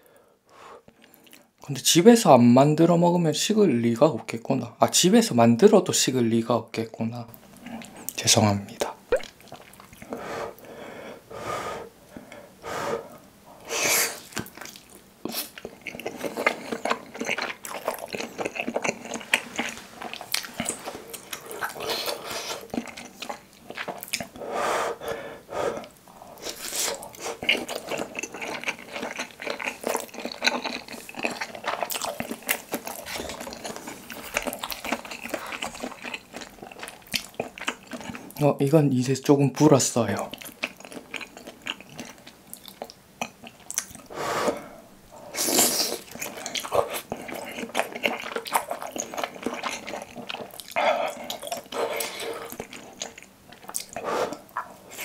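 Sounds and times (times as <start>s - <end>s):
wet mouth clicks and smacks: 8.8s - 10.1s
breathy bursts: 10.1s - 14.2s.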